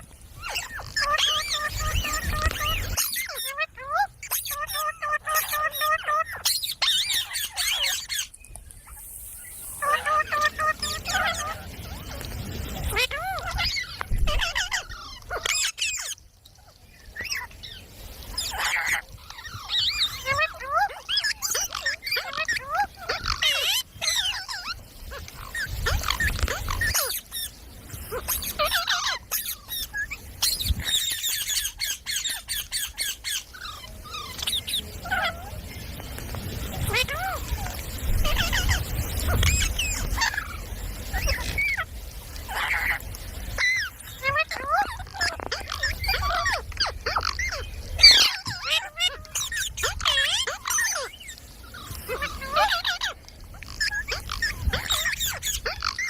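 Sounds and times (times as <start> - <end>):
parrot calling shrilly: 0.4 - 12.1, 12.9 - 16.2, 18.3 - 35.6, 36.8 - 41.9, 42.5 - 43.0, 43.6 - 56.0.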